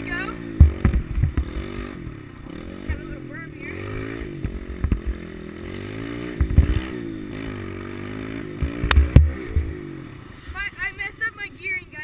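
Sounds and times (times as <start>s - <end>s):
pit bike engine revving: 0.0s - 11.9s
sharp knocks and rattles: 0.6s - 1.8s, 4.4s - 5.3s, 6.3s - 7.0s.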